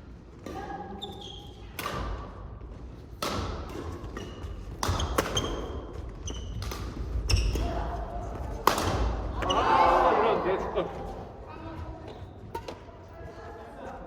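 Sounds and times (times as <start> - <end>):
shoes squeaking on court floor: 0.9 - 1.8, 3.8 - 8.5, 10.9 - 13.4
racket striking shuttlecock: 3.1 - 5.8, 8.6 - 9.2.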